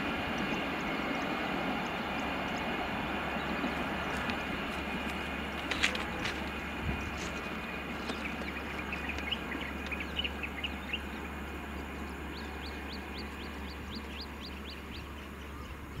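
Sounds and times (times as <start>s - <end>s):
bird chirping: 7.0s - 16.0s.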